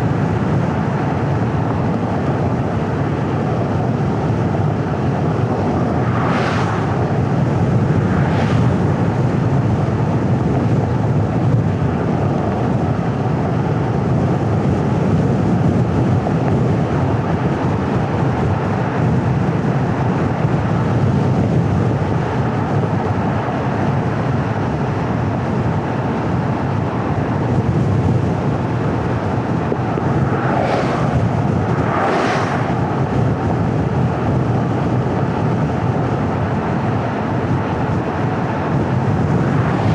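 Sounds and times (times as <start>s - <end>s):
low engine hum: 0.0s - 39.9s
road and tyre noise: 0.0s - 39.9s
brief rushing swells: 30.2s - 33.1s.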